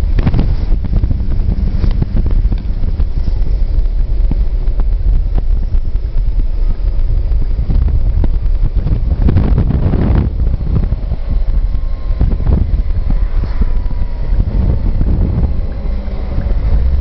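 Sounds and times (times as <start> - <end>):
diesel engine rumbling: 0.0 - 17.0
wind buffeting microphone: 0.0 - 17.0.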